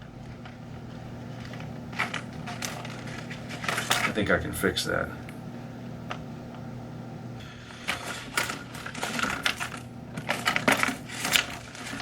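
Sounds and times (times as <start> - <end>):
plastic parts clicking and rattling: 0.2 - 4.2, 7.8 - 12.0.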